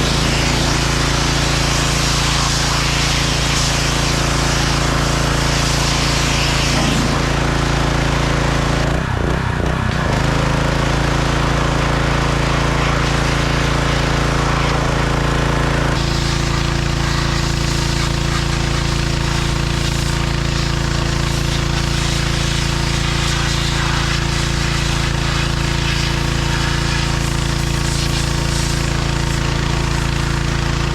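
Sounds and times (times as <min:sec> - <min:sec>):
tractor diesel engine running: 0:06.7 - 0:23.2.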